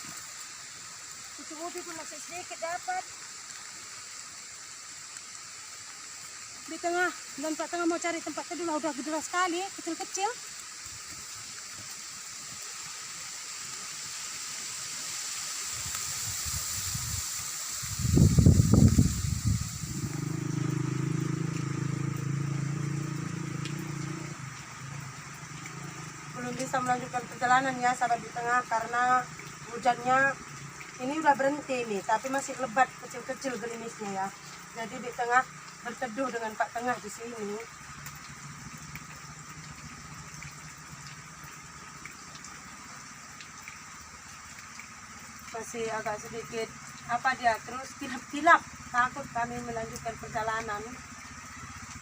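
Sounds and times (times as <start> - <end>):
rain hissing: 0.0 - 52.0
steady drizzle: 0.0 - 52.0
vehicle engine humming: 18.2 - 31.0, 32.6 - 43.3, 46.3 - 52.0.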